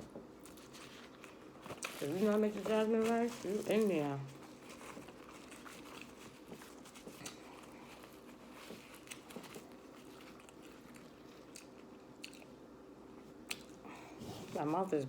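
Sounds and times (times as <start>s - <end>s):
small food crunches: 0.4s - 12.6s
chewing and mouth clicks: 4.6s - 14.0s.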